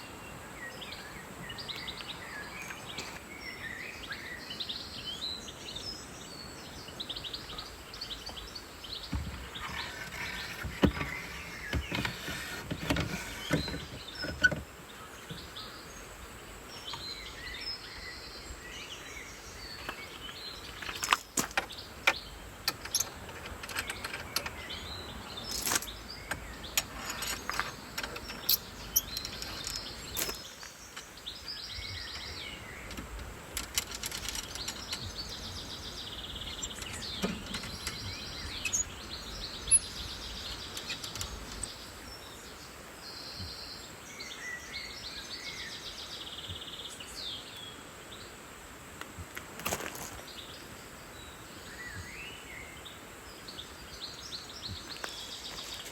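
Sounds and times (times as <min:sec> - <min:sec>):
small birds calling: 0:00.0 - 0:48.5, 0:49.2 - 0:55.9
outdoor background: 0:00.0 - 0:55.9
sharp clicks and knocks: 0:09.1 - 0:14.7, 0:20.7 - 0:24.8, 0:25.4 - 0:31.1, 0:32.8 - 0:35.5, 0:36.4 - 0:38.9, 0:40.6 - 0:41.8.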